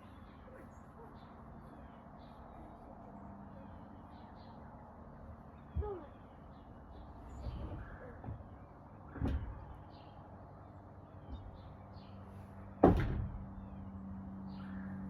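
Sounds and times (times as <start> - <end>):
door banging shut: 12.8 - 13.4.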